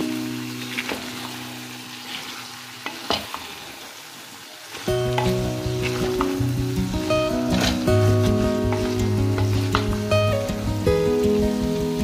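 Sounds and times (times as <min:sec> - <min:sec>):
food sizzling in a pot: 0:00.0 - 0:12.0
background music: 0:04.9 - 0:12.0
wooden spoon stirring: 0:05.0 - 0:10.1.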